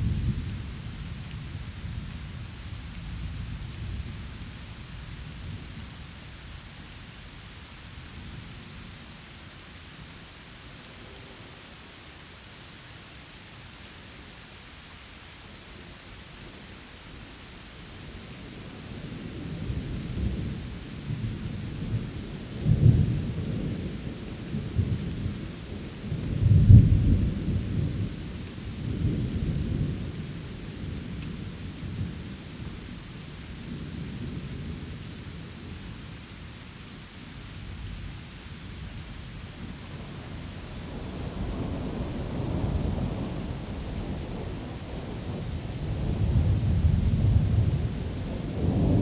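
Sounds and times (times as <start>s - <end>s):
steady rain: 0.0s - 49.0s
thunder rumbling: 19.2s - 32.3s, 39.6s - 49.0s.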